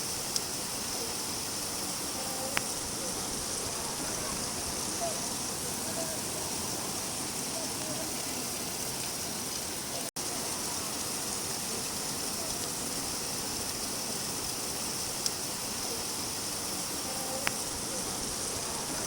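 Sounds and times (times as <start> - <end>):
faint water drips: 0.0 - 19.0
steady rain hiss: 0.0 - 19.0.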